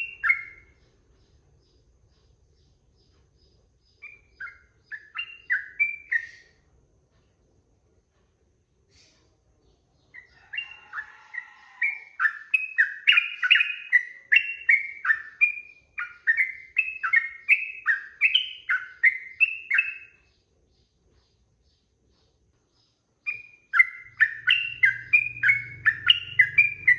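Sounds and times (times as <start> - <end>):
bird whistled song: 0.0 - 0.9, 3.8 - 6.6, 10.1 - 20.3, 23.2 - 26.9.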